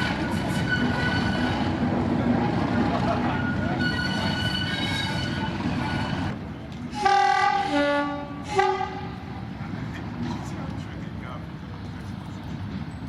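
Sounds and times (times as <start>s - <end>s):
train horn blasts: 0.0s - 1.8s, 6.9s - 9.2s
train running with high squeal: 0.0s - 13.0s.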